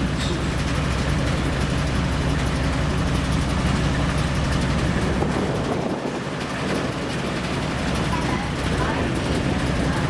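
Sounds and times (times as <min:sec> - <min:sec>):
diesel locomotive engine running: 0:00.0 - 0:10.0.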